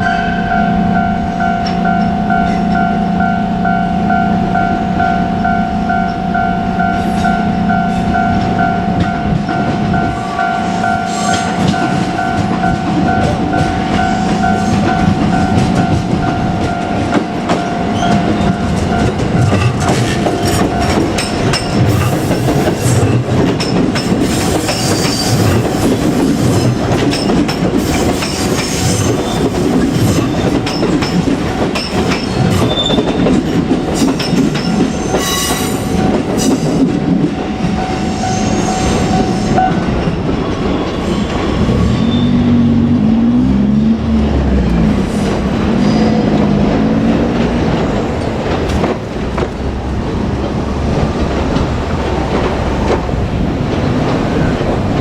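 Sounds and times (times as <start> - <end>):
high wheel squeal: 5.8 - 23.1, 24.0 - 31.2, 31.8 - 36.8, 37.5 - 42.9
train wheels clattering: 6.8 - 43.3, 44.1 - 55.0.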